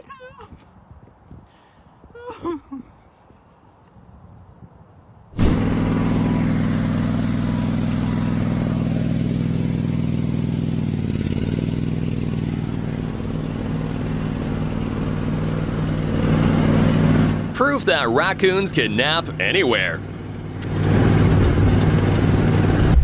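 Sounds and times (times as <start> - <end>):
vehicle engine running: 5.4 - 23.0.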